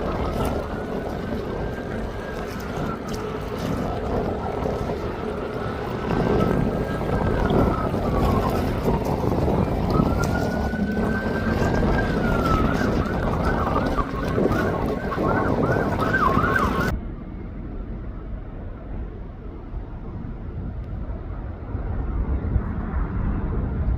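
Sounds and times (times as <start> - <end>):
emergency vehicle siren: 0.0 - 18.9
traffic rumble: 0.0 - 23.9
wind: 0.0 - 23.9.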